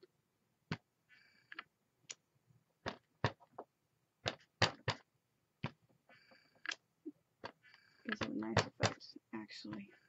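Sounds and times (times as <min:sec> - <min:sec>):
rubber stamp tapping on paper: 0:04.2 - 0:05.8, 0:07.4 - 0:09.0.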